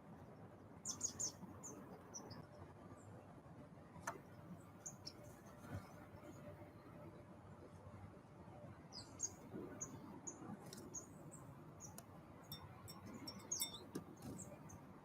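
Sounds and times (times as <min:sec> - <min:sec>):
small birds chirping: 0:00.8 - 0:02.5, 0:04.7 - 0:06.3, 0:08.9 - 0:14.9.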